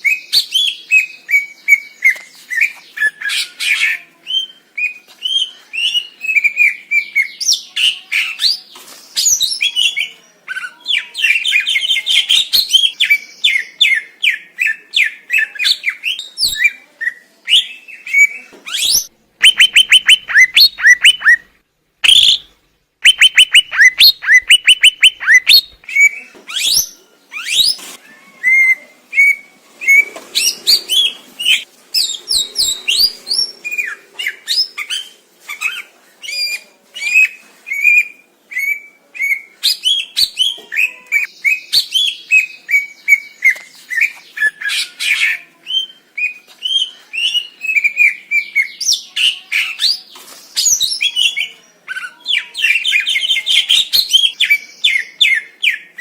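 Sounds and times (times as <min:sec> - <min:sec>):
bird singing chirps and whistles: 0:17.5 - 0:27.8.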